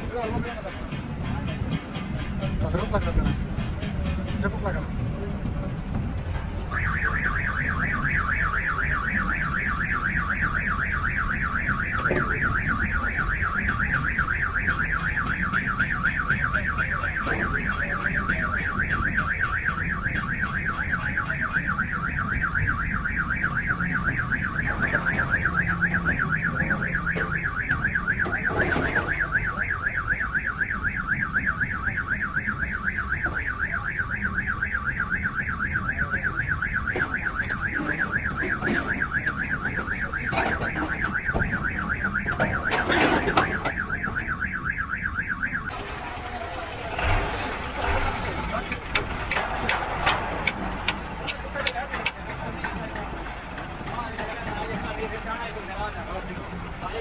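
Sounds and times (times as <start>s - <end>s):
electronic alarm warbling: 6.7s - 45.8s.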